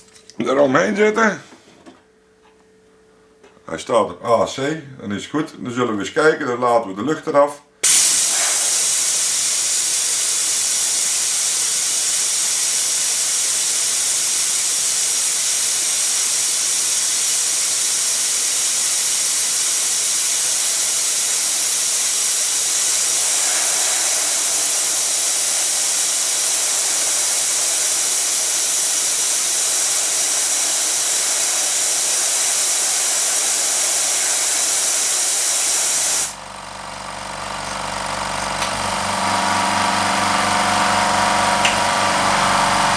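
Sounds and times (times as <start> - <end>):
compressed air hissing: 7.8 - 36.4, 38.6 - 42.9
compressor motors running: 7.8 - 42.9.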